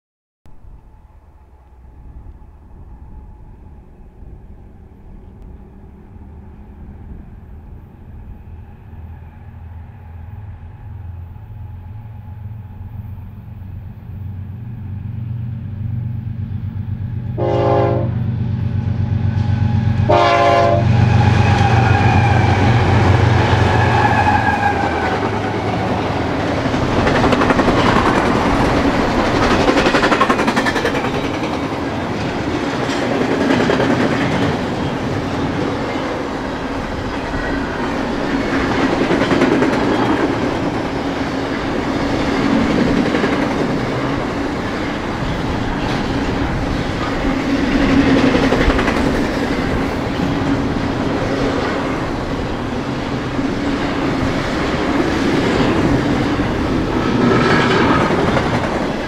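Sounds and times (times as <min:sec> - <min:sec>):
diesel locomotive engines rumbling: 0:00.5 - 0:59.0
train horn blasts: 0:17.3 - 0:25.3
train wheels clattering on rails: 0:21.0 - 0:59.0.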